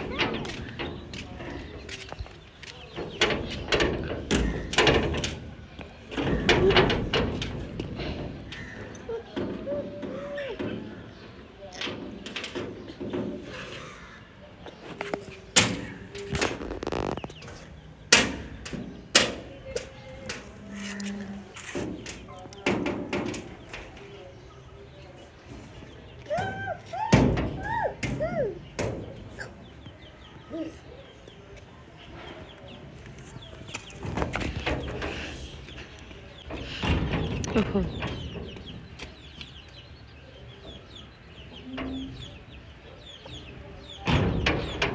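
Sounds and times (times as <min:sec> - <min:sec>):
knocks and rustles: 0:00.0 - 0:44.9
chicks peeping: 0:18.9 - 0:44.9.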